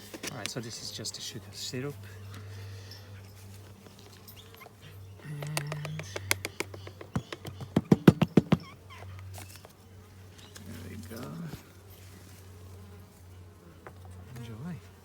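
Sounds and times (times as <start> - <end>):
honeybees buzzing: 0.0 - 15.0
sharp clicks and knocks: 5.4 - 8.7.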